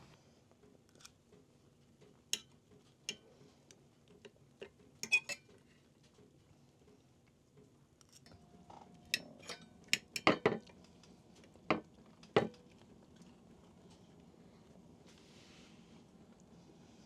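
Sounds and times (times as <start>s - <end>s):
dishes and cutlery clinking: 4.6s - 5.6s, 9.0s - 10.7s.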